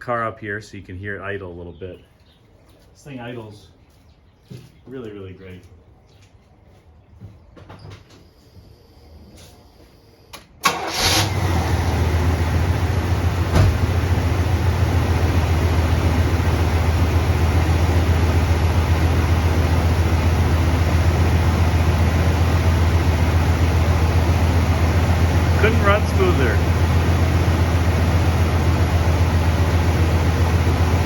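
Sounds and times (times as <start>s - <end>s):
car engine starting and idling: 10.4s - 31.0s
brief thump: 13.5s - 13.8s.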